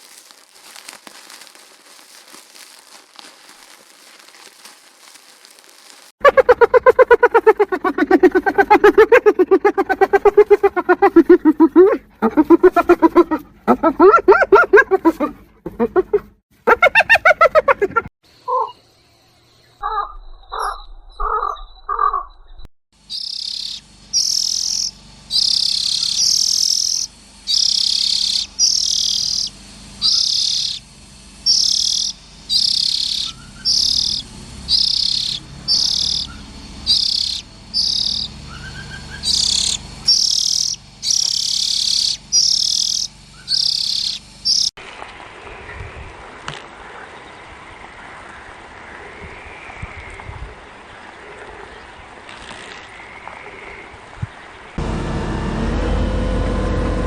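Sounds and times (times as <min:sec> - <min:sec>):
animal harsh chirping call: 0:06.2 - 0:18.8, 0:23.1 - 0:30.8, 0:31.5 - 0:44.7.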